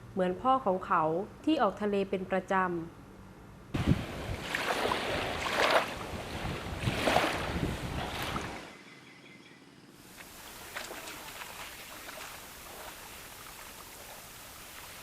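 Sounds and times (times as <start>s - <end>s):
wind noise on microphone: 3.7s - 8.7s
sea waves washing: 3.8s - 8.7s, 10.1s - 15.0s.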